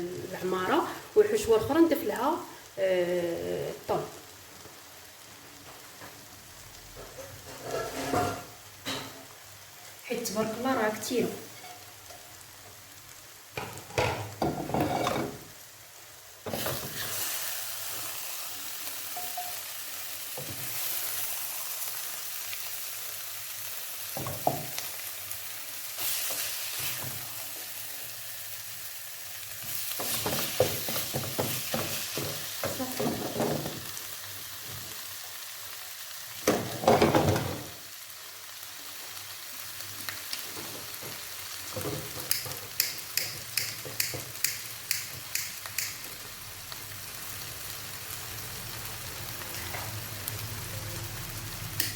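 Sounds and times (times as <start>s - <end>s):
food sizzling in frying pan: 0.0s - 51.9s
spoon scraping and stirring: 7.4s - 8.5s.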